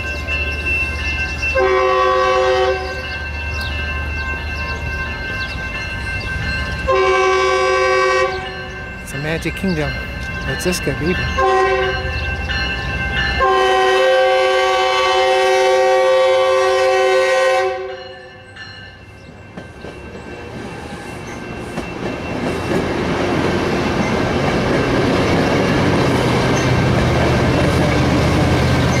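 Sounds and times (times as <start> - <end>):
train horn chord: 1.5 - 3.2, 6.9 - 8.7, 11.3 - 12.2, 13.4 - 18.3.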